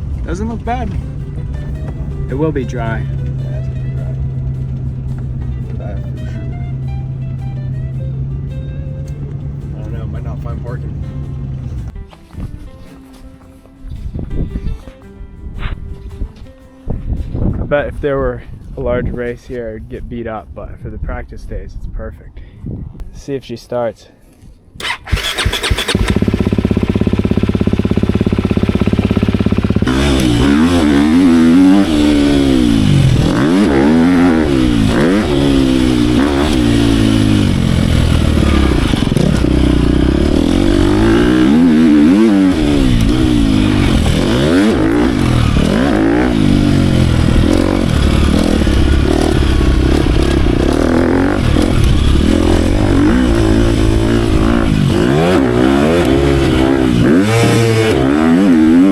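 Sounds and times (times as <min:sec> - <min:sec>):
dirt bike engine revving: 0:24.8 - 0:58.9.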